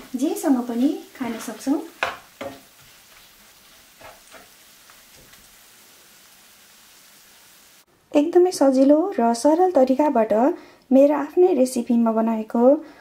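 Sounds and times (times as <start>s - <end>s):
spatula scraping wok: 0.0s - 5.7s
oil sizzling: 0.0s - 7.9s.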